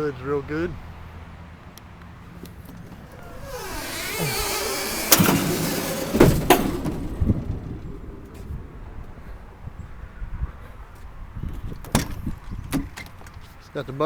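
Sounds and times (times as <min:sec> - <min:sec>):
truck bodywork clunking shut: 0:02.3 - 0:09.5, 0:11.6 - 0:13.5.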